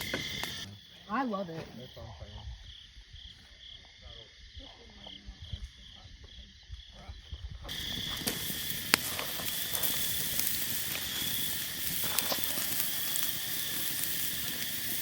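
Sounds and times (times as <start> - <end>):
fire popping: 0.0 - 1.5, 7.6 - 15.0
campfire crackling and hissing: 0.0 - 15.0
night insects chirping: 0.0 - 15.0.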